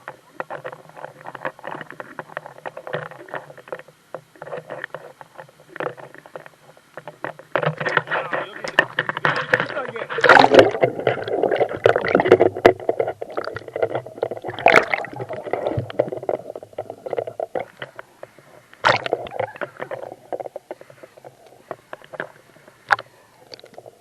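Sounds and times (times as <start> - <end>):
stream water splashing: 7.0 - 20.4.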